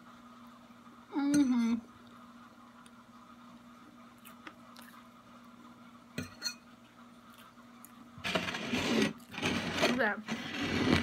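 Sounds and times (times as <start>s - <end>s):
faint steady hum: 0.0s - 11.0s
person chewing cake: 4.1s - 5.6s, 7.2s - 8.0s.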